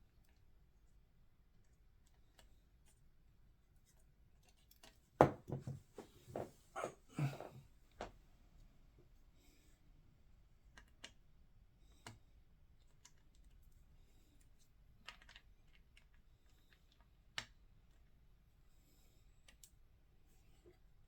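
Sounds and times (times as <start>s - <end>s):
small plastic clicks and taps: 10.7s - 11.2s.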